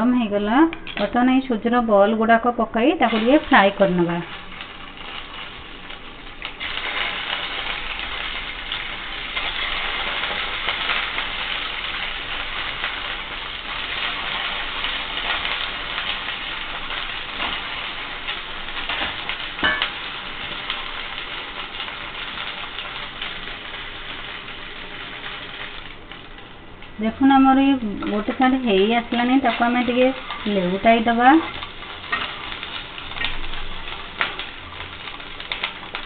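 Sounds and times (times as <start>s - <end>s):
balls sizzling in hot oil: 0.0s - 36.0s.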